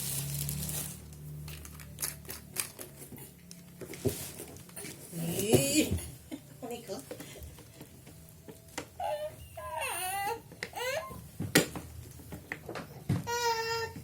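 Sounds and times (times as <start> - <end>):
baby crying: 9.0 - 11.2, 13.3 - 14.0.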